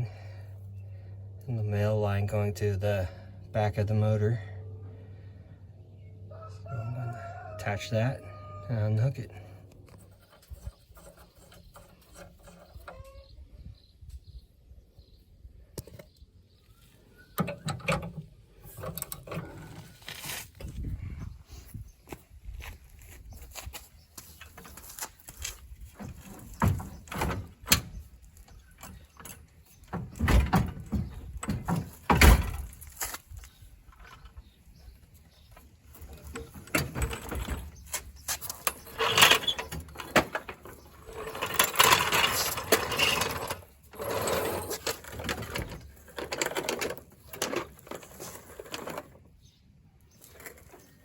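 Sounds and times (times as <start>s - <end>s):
scraping and rattling: 9.7s - 13.3s, 35.3s - 49.4s, 50.1s - 51.0s
clunks and knocks of engine work: 17.4s - 20.0s, 26.0s - 33.0s.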